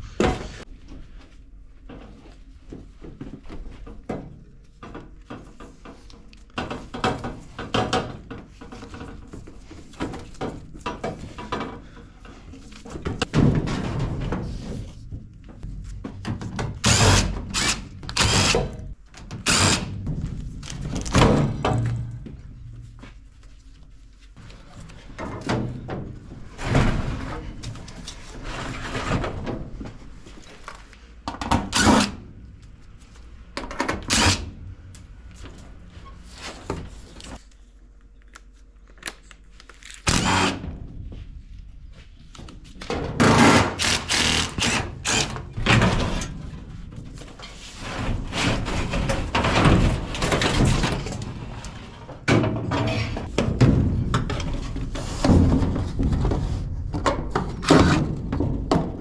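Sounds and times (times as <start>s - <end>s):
sheet metal knocks and clanks: 52.2s - 59.0s.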